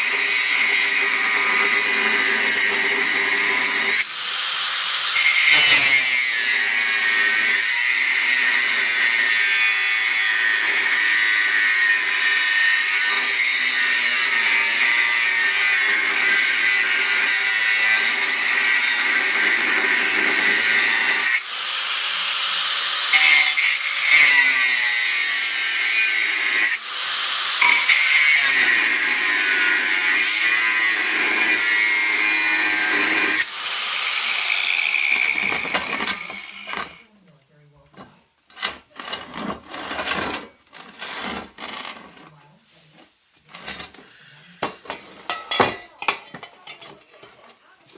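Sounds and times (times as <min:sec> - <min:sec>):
power tool whining on steel: 0:00.0 - 0:37.1.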